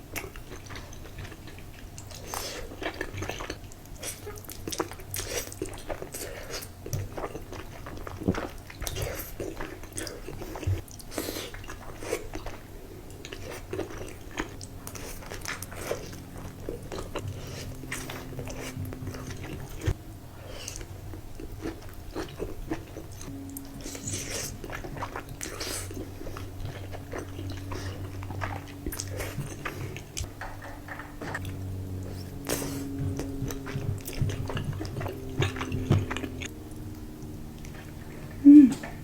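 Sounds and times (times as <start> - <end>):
person chewing crunchy food: 0.0 - 39.0
low steady drone: 14.0 - 39.0.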